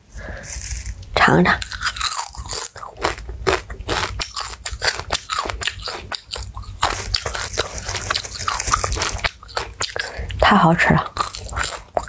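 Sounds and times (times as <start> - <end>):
person chewing crunchy food: 0.4 - 10.4, 11.0 - 12.0.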